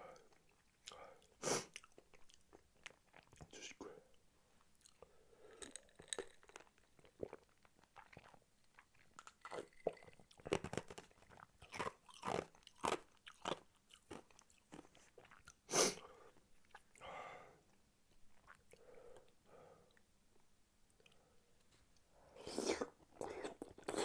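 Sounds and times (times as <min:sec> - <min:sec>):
person chewing and biting food: 0:04.8 - 0:15.6.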